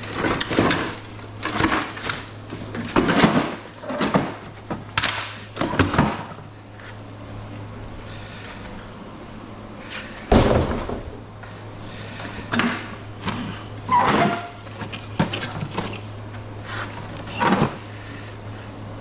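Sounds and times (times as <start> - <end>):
metal parts clanking and banging: 0.0 - 6.4, 12.5 - 16.2.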